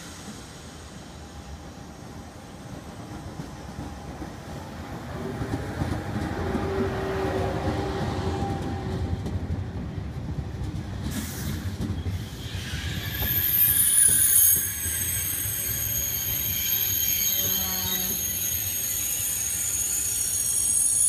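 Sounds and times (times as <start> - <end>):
train wheels rumbling on rail: 0.0 - 21.0
high-pitched brake squeal: 12.1 - 21.0.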